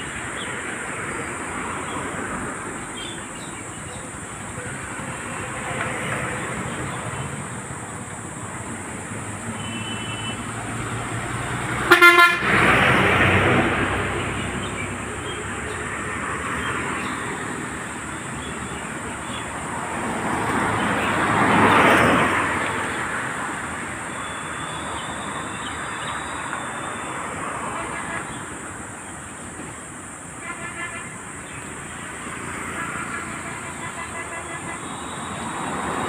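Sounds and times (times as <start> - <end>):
road traffic: 0.0 - 36.0
vehicles passing: 0.0 - 36.0
vehicle horn honk: 9.6 - 10.5, 11.8 - 12.6, 24.2 - 28.4, 30.4 - 31.2, 32.7 - 36.0.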